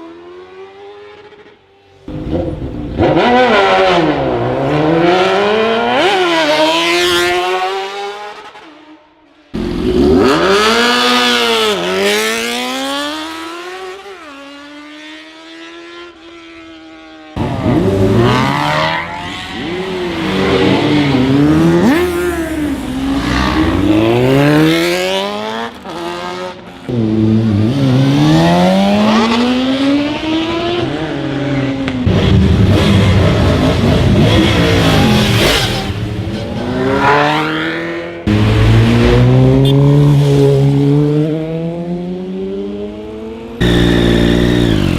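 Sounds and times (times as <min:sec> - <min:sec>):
superbike engines revving: 0:17.4 - 0:44.9.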